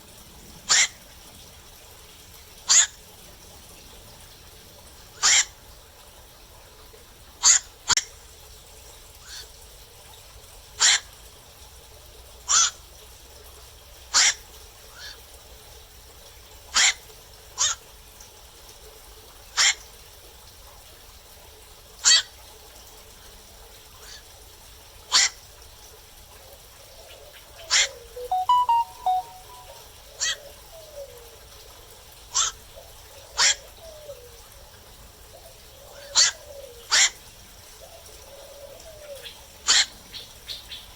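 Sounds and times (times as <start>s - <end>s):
night herons calling: 0.7s - 1.0s, 5.2s - 5.6s, 36.0s - 37.2s, 38.6s - 40.9s.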